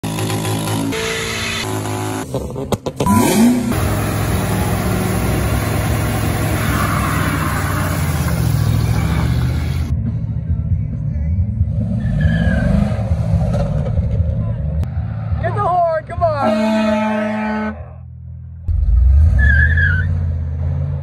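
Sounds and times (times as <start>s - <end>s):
engine revving: 0.0s - 9.9s.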